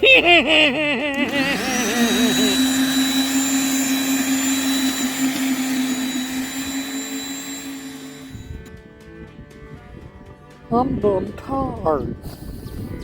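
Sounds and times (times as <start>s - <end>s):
small electric motor whining: 1.1s - 9.6s.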